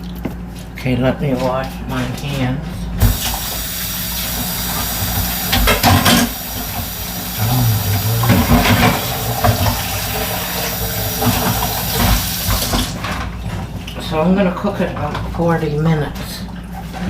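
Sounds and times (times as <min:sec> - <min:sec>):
tap running into sink: 0:08.4 - 0:13.0.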